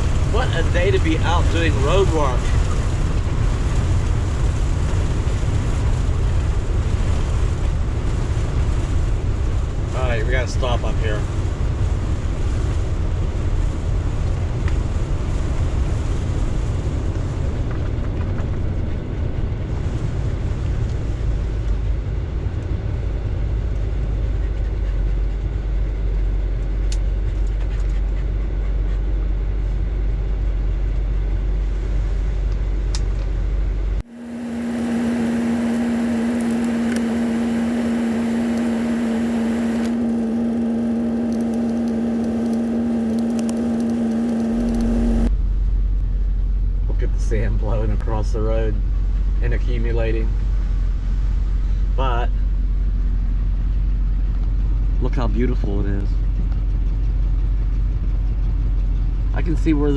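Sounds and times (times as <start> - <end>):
droning hum: 0.0 - 59.9
wind and engine rumble: 0.0 - 59.9.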